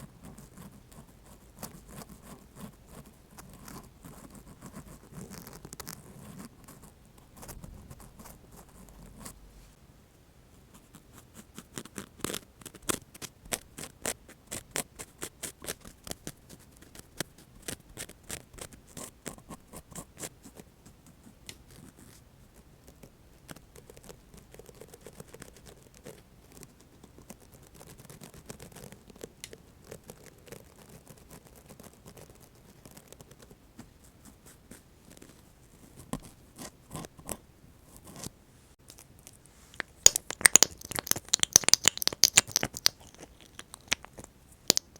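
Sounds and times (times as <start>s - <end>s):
cotton swabs scratching: 38.9s - 44.9s.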